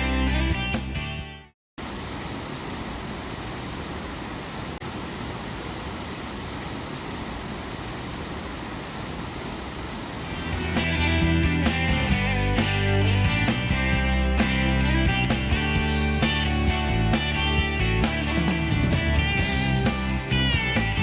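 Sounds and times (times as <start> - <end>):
music: 0.0 - 1.5, 10.3 - 21.0.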